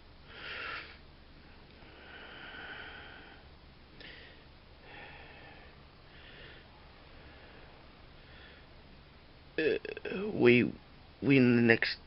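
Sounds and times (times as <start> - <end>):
faint breaths or sniffs: 0.3 - 1.0.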